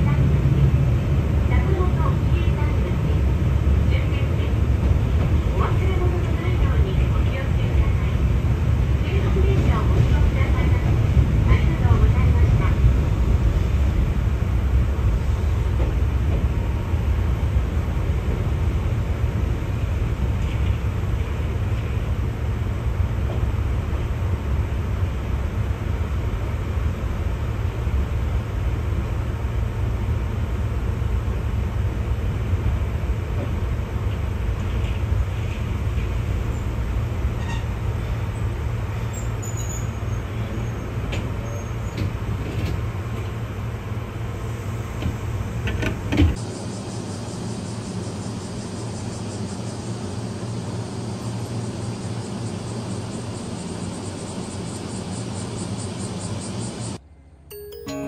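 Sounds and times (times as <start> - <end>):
train running rumble: 0.0 - 57.0.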